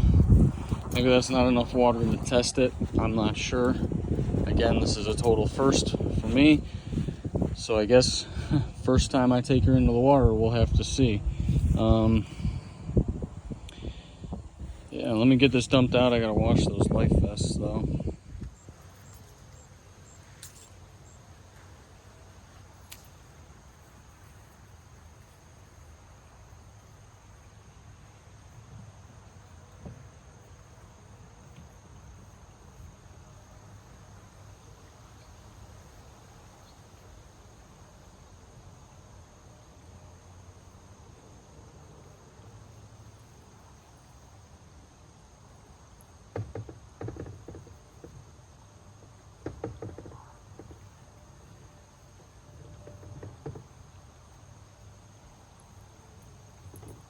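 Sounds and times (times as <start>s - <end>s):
low rumble: 0.0s - 18.4s
crickets chirping: 0.0s - 57.0s
knocks: 46.3s - 48.2s, 49.4s - 50.8s.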